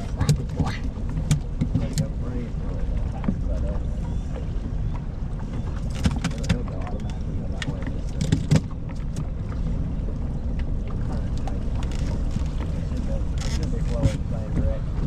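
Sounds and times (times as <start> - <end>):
boat low rumble: 0.0 - 15.0
sharp knocks and clicks: 5.0 - 9.4.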